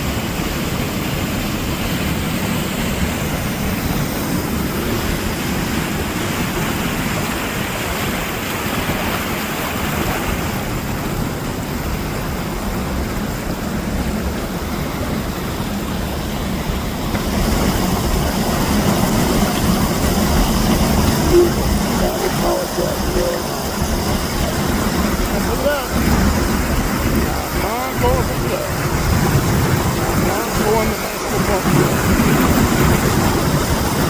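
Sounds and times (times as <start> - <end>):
loud rushing noise: 13.9 - 34.0.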